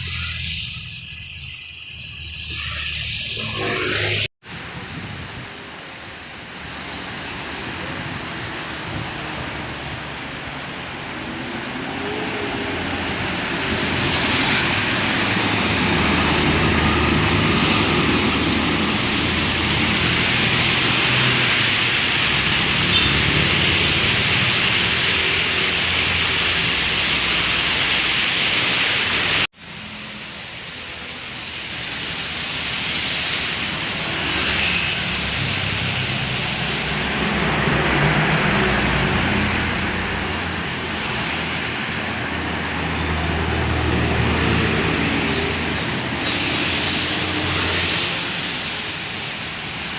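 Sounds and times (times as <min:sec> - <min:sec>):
heavy vehicle engine drone: 0:00.0 - 0:49.9
tyres hissing through water: 0:00.0 - 0:49.9.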